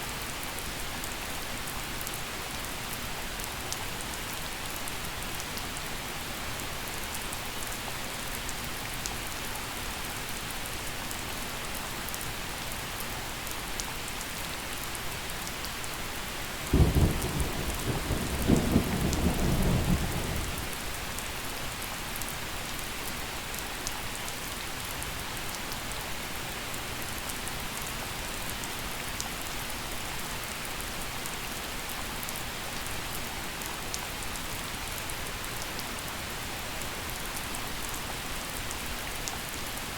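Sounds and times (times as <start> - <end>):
gentle rain: 0.0 - 39.9
thunder clap and rumble: 16.7 - 20.7.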